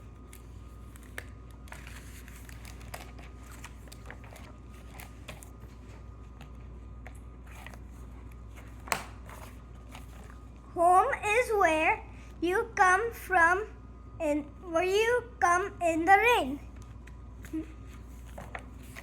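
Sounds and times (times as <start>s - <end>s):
low steady hum: 0.0s - 19.0s
paper rustling: 0.1s - 10.6s, 16.7s - 19.0s.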